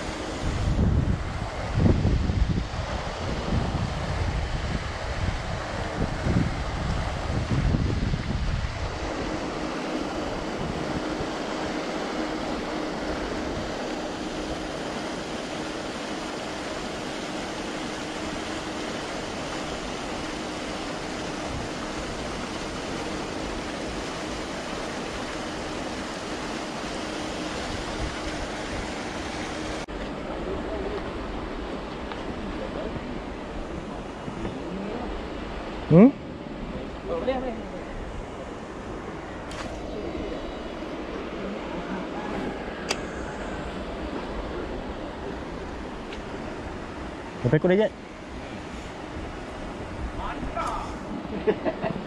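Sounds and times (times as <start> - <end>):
wind buffeting microphone: 0.0 - 37.2
faint steady hum: 0.0 - 52.0
steady outdoor hiss: 0.0 - 52.0.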